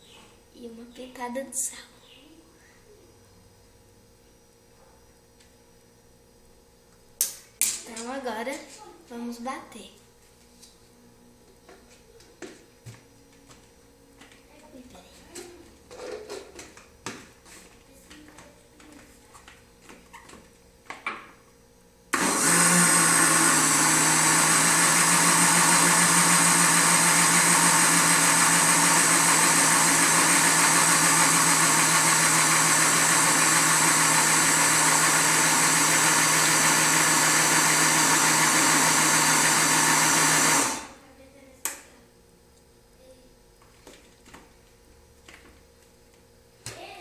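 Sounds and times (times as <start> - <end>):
electric blender running: 22.1 - 41.0.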